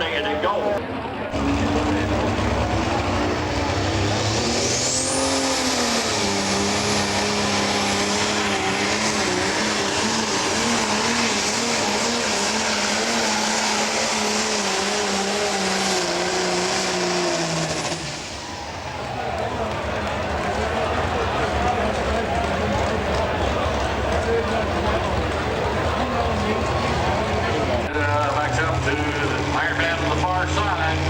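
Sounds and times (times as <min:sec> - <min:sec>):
diesel engine at full power: 0:00.0 - 0:31.0
turbocharger whistle: 0:01.4 - 0:19.3.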